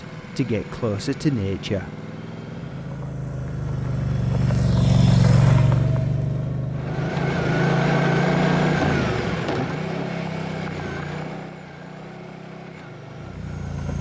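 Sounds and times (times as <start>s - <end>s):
motorcycle engine running: 1.9s - 7.8s, 13.1s - 14.0s.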